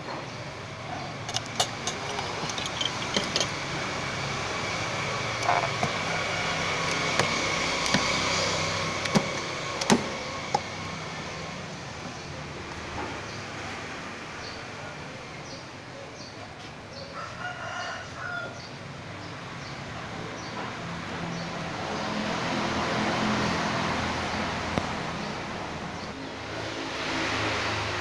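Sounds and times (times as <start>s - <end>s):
low mechanical hum: 0.0s - 13.4s
passing vehicle: 0.0s - 15.2s, 19.1s - 28.0s.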